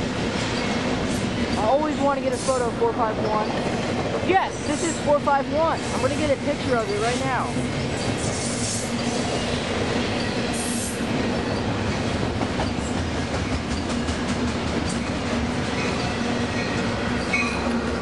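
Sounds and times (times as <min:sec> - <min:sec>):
freight train rumbling past: 0:00.0 - 0:18.0
wheels clicking over rail joints: 0:11.1 - 0:18.0.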